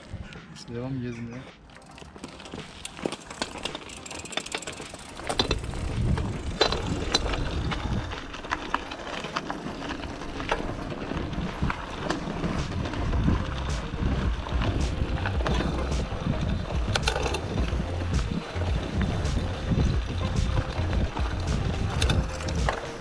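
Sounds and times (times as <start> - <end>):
bicycle parts rattling: 1.7 - 14.6
wind rumble on microphone: 5.4 - 8.6, 11.0 - 23.0.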